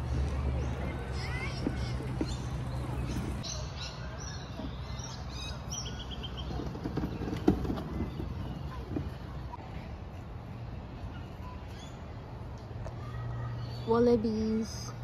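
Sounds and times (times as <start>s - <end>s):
birds chirping: 0.0s - 9.6s.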